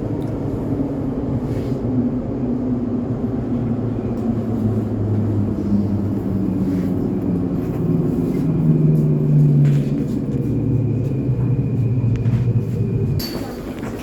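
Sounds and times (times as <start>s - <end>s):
train rumbling inside carriage: 0.0s - 14.0s
train motor hum: 2.9s - 14.0s.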